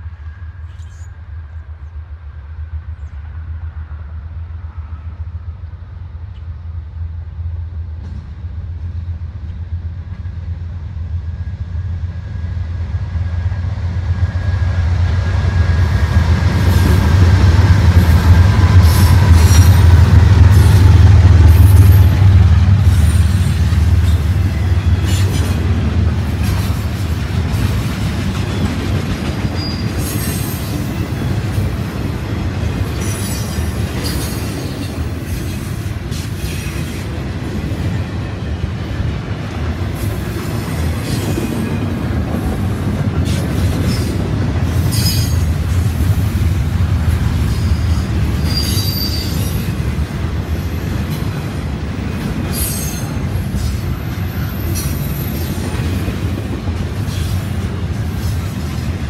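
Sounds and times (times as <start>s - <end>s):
diesel locomotive rumble: 0.0s - 59.0s
train wheel noise: 0.0s - 59.0s.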